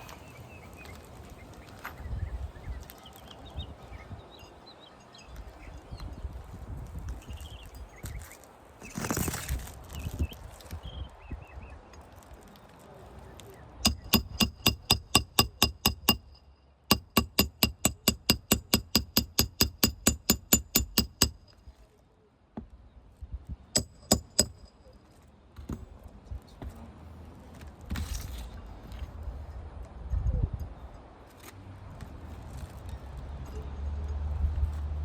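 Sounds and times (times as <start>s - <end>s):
hammer striking metal: 13.8s - 21.6s, 23.8s - 25.0s.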